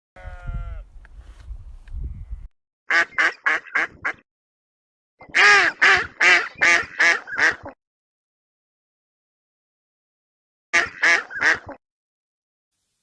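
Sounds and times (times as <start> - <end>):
duck quacking: 2.9 - 4.2, 5.3 - 7.8, 10.8 - 11.8.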